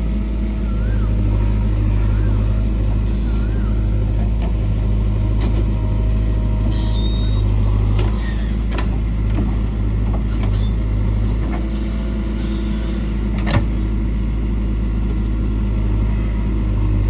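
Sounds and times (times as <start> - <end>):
diesel engine running: 0.0 - 17.0
high squeak: 6.6 - 8.6.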